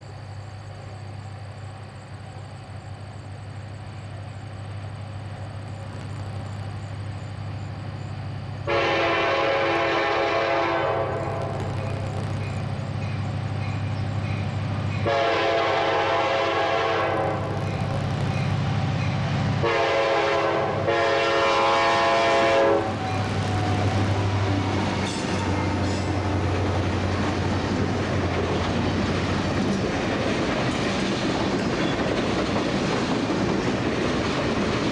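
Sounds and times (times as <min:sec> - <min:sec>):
diesel locomotive engine rumble: 0:00.0 - 0:34.9
train wheels clattering on rails: 0:04.1 - 0:34.9
train air horn blasts: 0:08.6 - 0:11.9, 0:15.0 - 0:17.6, 0:19.6 - 0:26.2.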